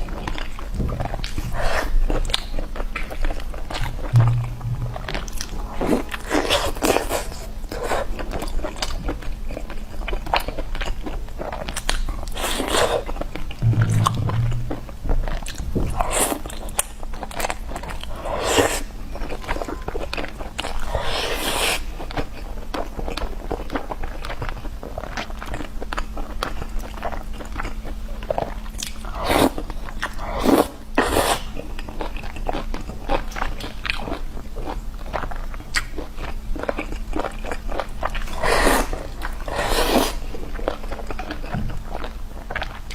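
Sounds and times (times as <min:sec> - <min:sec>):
person chewing crunchy food: 0:16.0 - 0:42.9.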